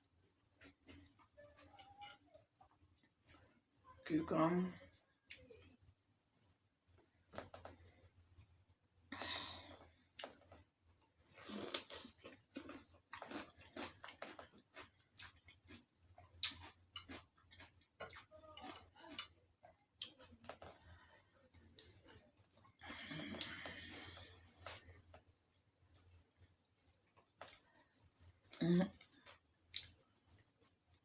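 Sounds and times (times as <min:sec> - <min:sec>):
person chewing food: 0:00.1 - 0:03.6, 0:05.3 - 0:08.5, 0:09.6 - 0:31.0.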